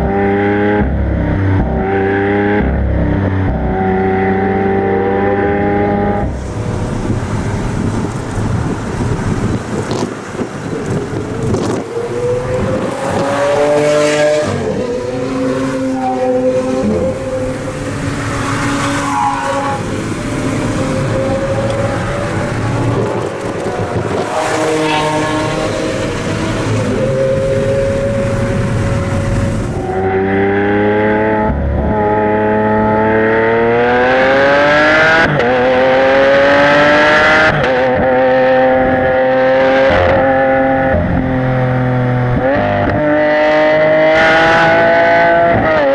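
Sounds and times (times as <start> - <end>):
sports car engine revving: 0.0 - 45.9
steady rushing noise: 5.8 - 30.6.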